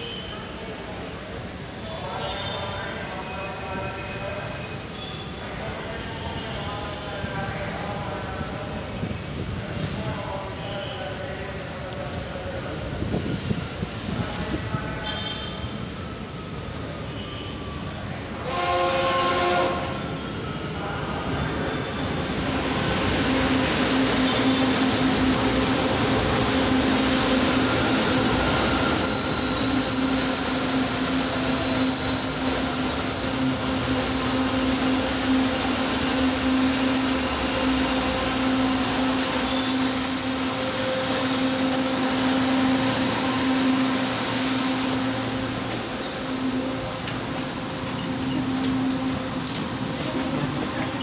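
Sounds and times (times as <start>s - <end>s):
train horn: 18.4s - 20.2s
wheel and brake squeal: 28.8s - 42.3s.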